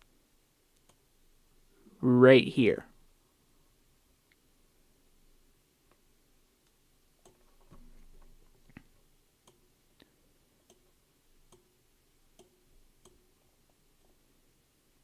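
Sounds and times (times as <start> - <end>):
computer mouse clicks: 0.7 - 1.0, 6.6 - 9.7, 11.5 - 11.7, 12.4 - 13.2.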